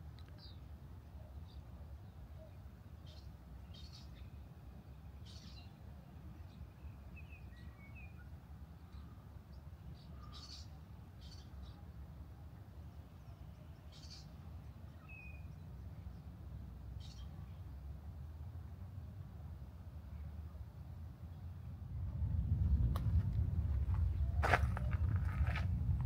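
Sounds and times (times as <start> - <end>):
small birds chirping: 0.2 - 12.0, 12.8 - 17.8
low background rumble: 14.6 - 26.0.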